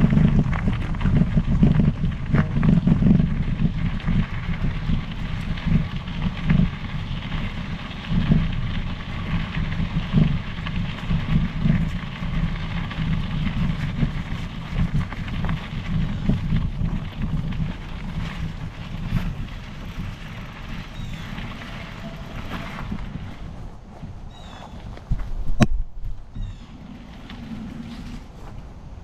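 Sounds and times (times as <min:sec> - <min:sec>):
bike tyres rolling on trail: 0:00.0 - 0:29.0
wind buffeting microphone: 0:00.0 - 0:29.0.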